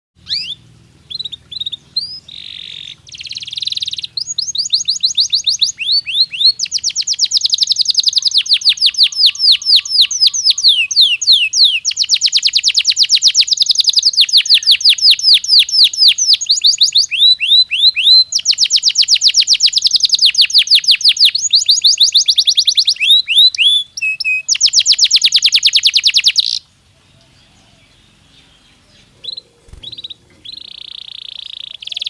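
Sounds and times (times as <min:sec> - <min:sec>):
canary singing: 0:00.2 - 0:32.0.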